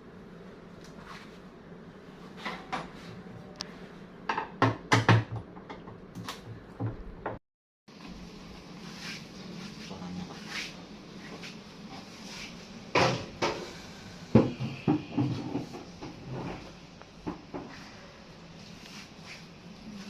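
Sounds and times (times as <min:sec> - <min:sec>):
washing machine parts knocking: 0:04.3 - 0:07.4.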